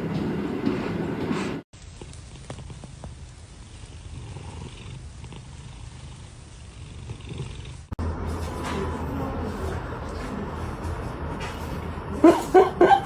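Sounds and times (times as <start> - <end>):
cat purring: 1.8 - 8.0.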